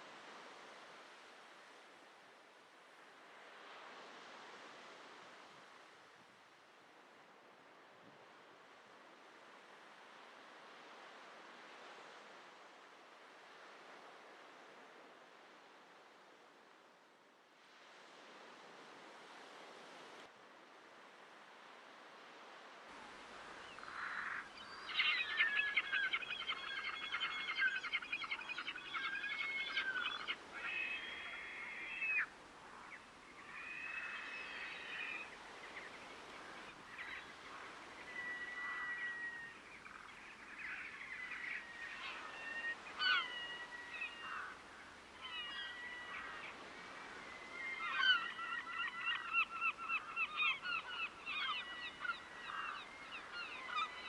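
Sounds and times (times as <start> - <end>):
waterbirds harsh calls: 23.7 - 32.3, 36.2 - 46.6, 47.4 - 54.0.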